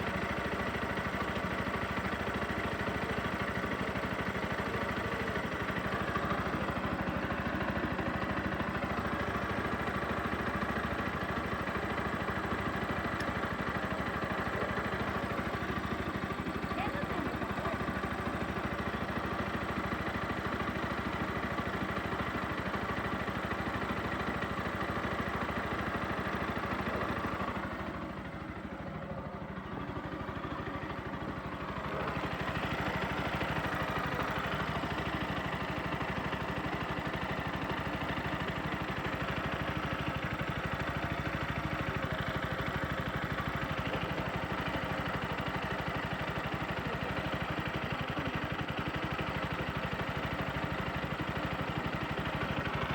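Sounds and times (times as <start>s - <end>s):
motorcycle engine idling: 0.0s - 52.9s.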